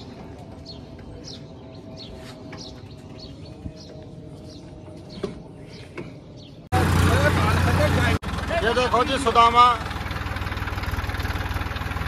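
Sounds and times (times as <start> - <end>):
birds chirping: 0.0 - 12.0
tractor engine running: 6.7 - 12.0.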